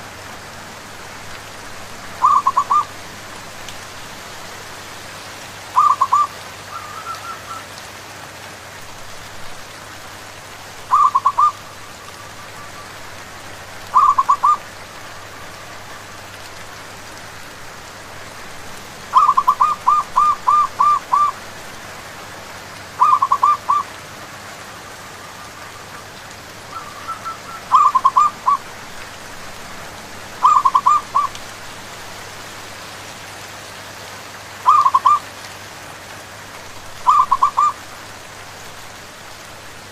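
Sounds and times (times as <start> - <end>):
steady rain: 0.0 - 39.9
doves cooing: 2.2 - 3.0, 5.8 - 7.7, 10.9 - 16.2, 19.1 - 21.4, 23.0 - 24.0, 24.8 - 28.9, 30.3 - 31.5, 34.6 - 35.3, 37.0 - 37.9.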